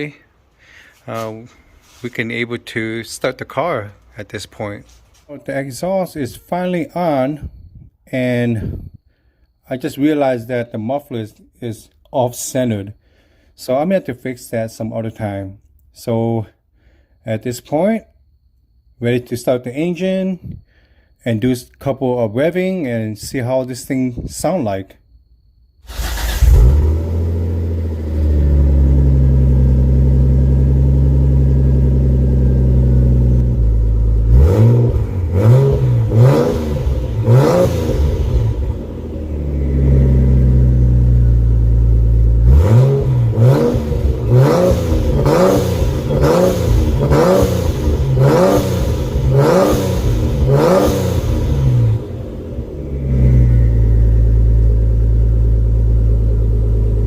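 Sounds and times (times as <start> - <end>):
person speaking: 0.0 - 8.9
car engine idling and revving: 25.9 - 57.0.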